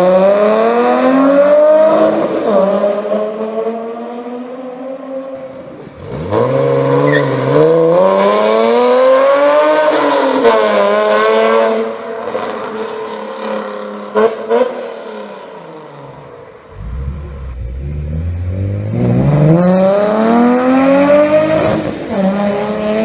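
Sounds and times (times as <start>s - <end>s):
car engine accelerating hard: 5.4s - 23.0s.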